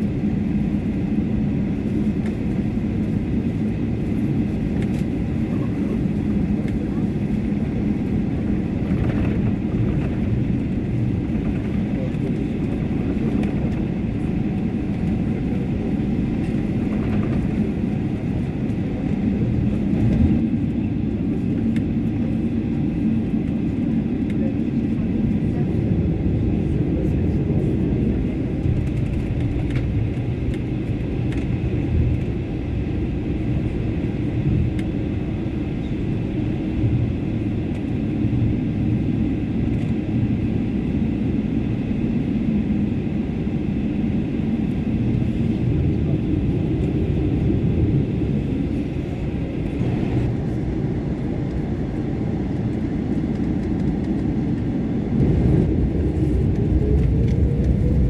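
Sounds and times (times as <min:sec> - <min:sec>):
airplane taxiing rumble in cabin: 0:00.0 - 0:58.0.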